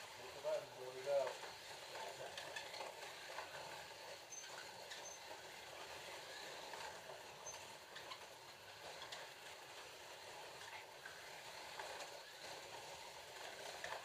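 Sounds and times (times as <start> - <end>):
slot cars whirring: 0.0 - 14.0.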